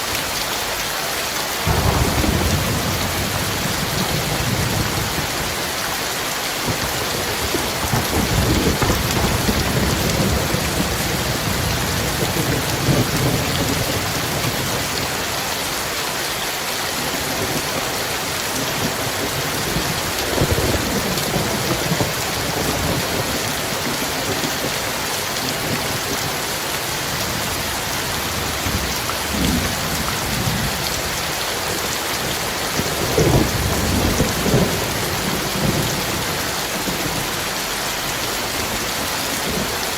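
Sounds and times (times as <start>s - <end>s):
heavy rain falling: 0.0s - 39.9s
rolling thunder: 1.6s - 5.8s, 6.6s - 15.2s, 32.4s - 39.8s.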